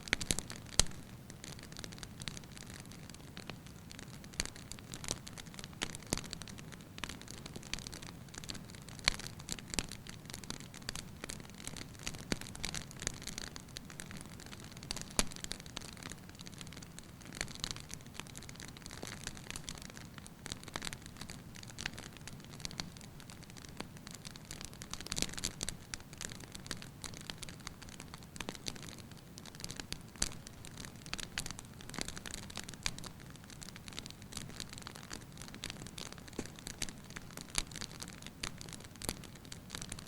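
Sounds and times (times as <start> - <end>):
firewood crackling and popping: 0.0 - 40.0
soft steady hiss: 0.0 - 40.0.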